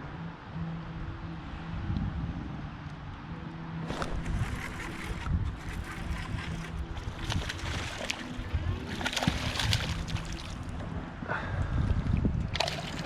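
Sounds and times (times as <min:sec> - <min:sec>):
water splashing against kayak: 0:03.8 - 0:10.9, 0:11.8 - 0:13.0.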